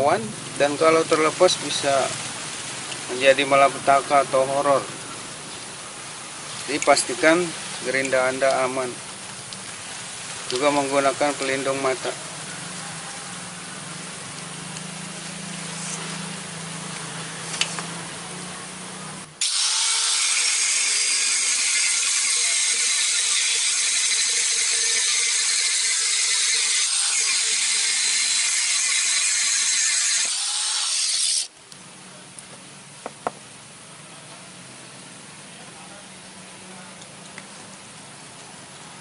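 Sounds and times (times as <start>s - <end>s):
angle grinder cutting metal: 19.4s - 31.5s.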